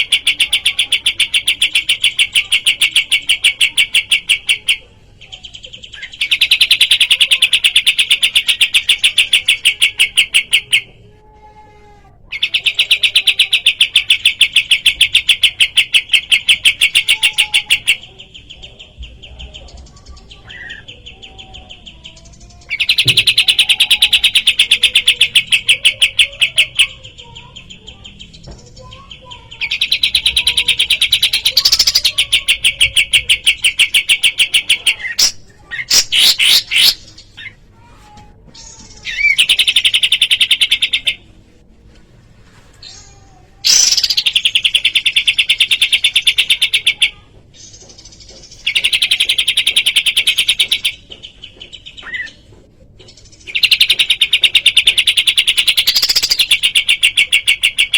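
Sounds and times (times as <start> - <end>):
songbird trilling: 12.4 - 37.6, 43.7 - 52.4, 53.2 - 57.9.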